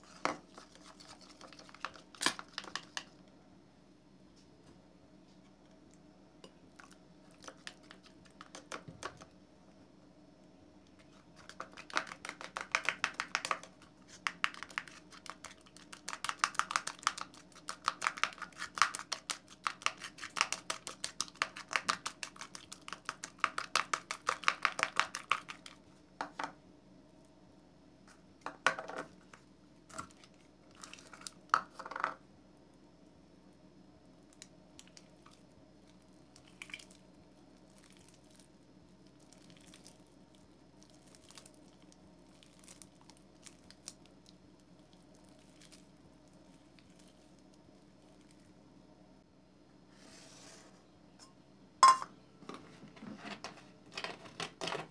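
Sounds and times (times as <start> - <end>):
spoon stirring sticky slime: 0.0 - 3.1, 10.9 - 25.8.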